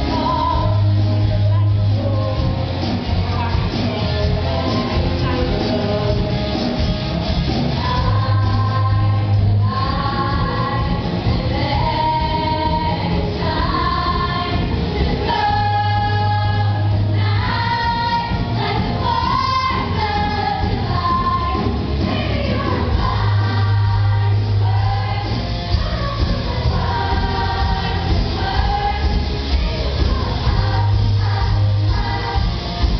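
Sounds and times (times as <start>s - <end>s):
instrumental backing with bass: 0.0s - 32.9s
choir singing: 11.6s - 32.9s.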